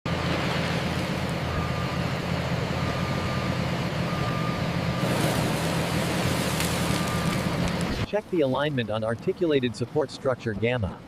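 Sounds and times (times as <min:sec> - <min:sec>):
construction vehicle diesel engine: 0:00.1 - 0:11.0
reversing alarm beeps: 0:01.5 - 0:02.0, 0:02.8 - 0:05.8, 0:06.8 - 0:07.5.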